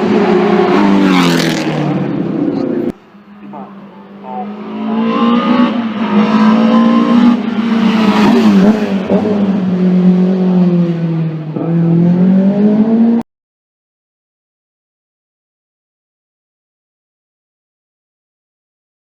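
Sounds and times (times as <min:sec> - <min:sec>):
racing car engine accelerating: 0:00.0 - 0:13.2.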